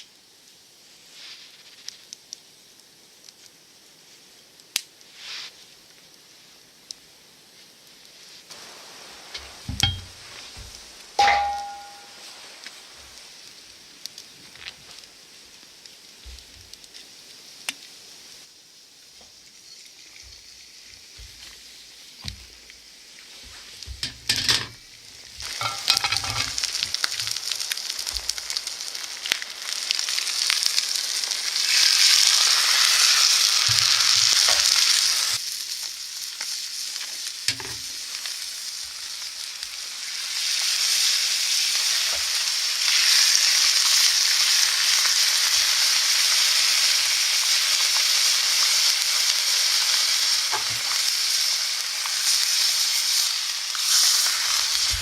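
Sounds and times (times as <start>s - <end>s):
chicken sizzling in a frying pan: 0.0s - 55.0s
knocks: 9.7s - 12.0s.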